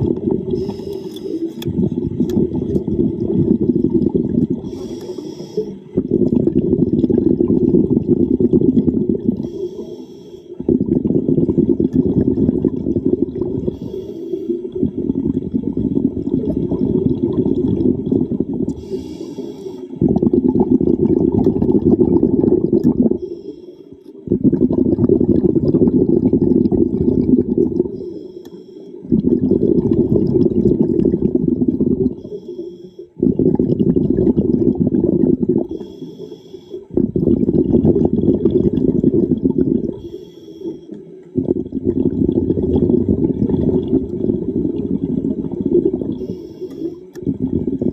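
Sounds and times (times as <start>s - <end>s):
bubbling exhale underwater: 0.0s - 28.2s, 29.0s - 47.9s
regulator inhale hiss: 0.5s - 1.7s, 4.6s - 6.0s, 9.3s - 10.6s, 13.6s - 14.7s, 18.7s - 20.0s, 23.1s - 24.1s, 27.9s - 29.1s, 32.1s - 33.2s, 35.7s - 36.9s, 39.9s - 41.1s, 46.1s - 47.2s.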